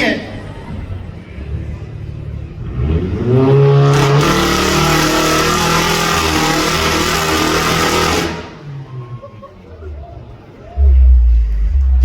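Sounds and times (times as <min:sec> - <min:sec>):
car engine revving hard: 0:02.6 - 0:08.6.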